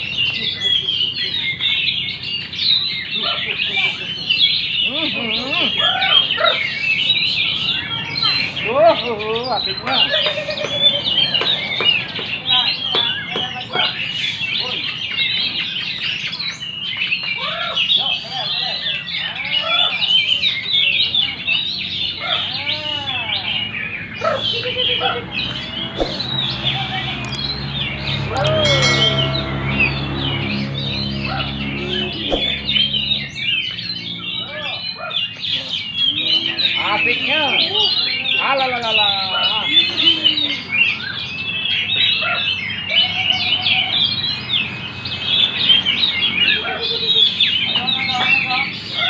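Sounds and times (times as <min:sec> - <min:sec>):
songbirds chirping and trilling: 0:00.0 - 0:49.0
low whistled bird notes: 0:25.5 - 0:34.8.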